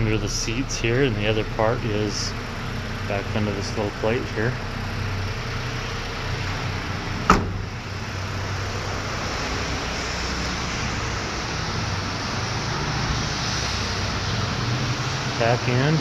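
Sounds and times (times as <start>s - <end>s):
truck engine idling: 0.0s - 16.0s
sharp metallic clunk: 7.2s - 7.8s.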